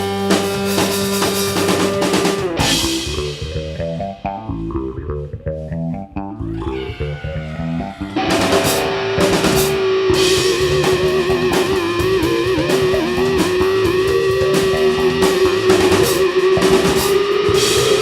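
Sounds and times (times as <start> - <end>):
bass guitar stepping notes: 0.0 - 18.0
rock band music: 0.0 - 18.0.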